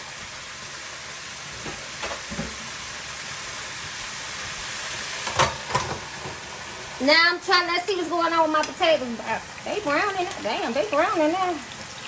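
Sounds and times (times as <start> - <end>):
deep-frying sizzle: 0.0 - 12.0.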